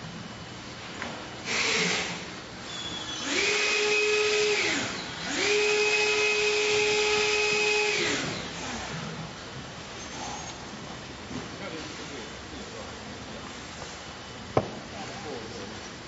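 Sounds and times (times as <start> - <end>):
small electric motor spinning: 1.5 - 2.2, 3.2 - 8.7.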